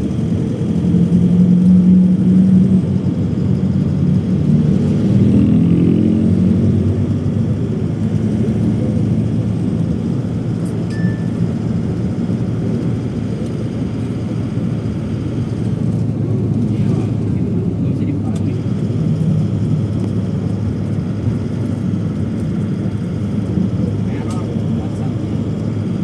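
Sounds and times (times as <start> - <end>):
jet engine drone in cabin: 0.0 - 26.0
high beep: 10.9 - 11.5.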